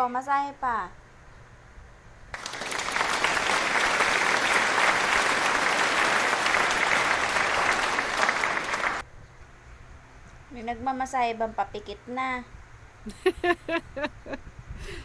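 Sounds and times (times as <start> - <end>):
applause: 2.4 - 9.0.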